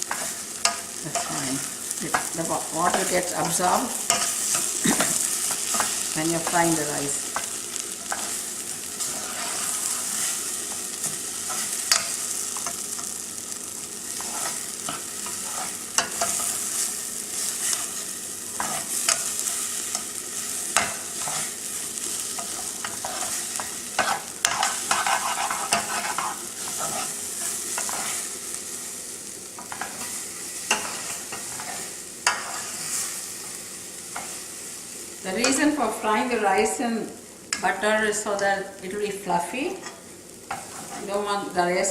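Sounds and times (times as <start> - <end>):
rice sizzling in a pan: 0.0 - 41.9
utensil stirring and scraping: 14.2 - 18.0, 20.8 - 21.6, 22.4 - 28.2.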